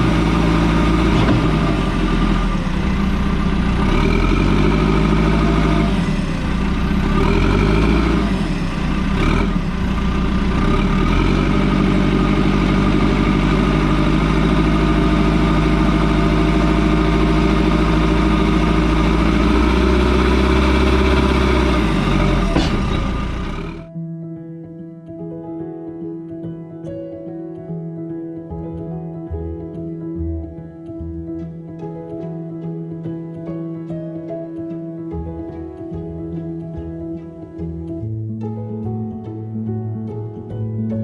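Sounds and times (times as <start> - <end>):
sharp knocks: 0.0 - 2.6, 20.4 - 23.9
diesel engine running: 0.0 - 23.9.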